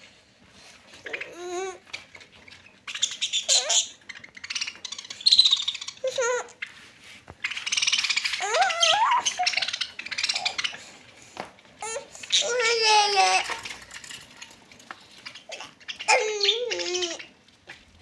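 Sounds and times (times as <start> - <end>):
parrots screeching and squawking: 0.9 - 6.8, 7.4 - 11.2, 11.8 - 17.4
parrots warbling calls: 2.8 - 6.6, 7.4 - 11.1, 11.8 - 14.2, 15.2 - 17.4.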